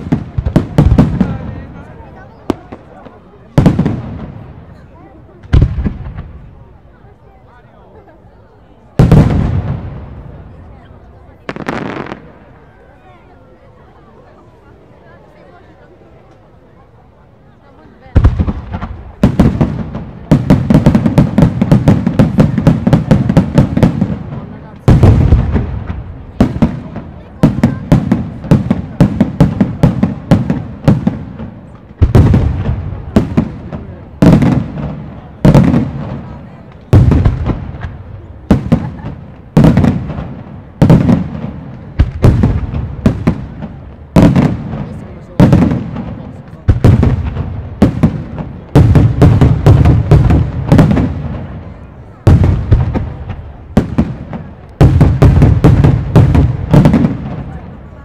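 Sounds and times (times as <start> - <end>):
heavy firework boom: 5.4 - 6.6, 9.0 - 10.6, 18.1 - 57.8.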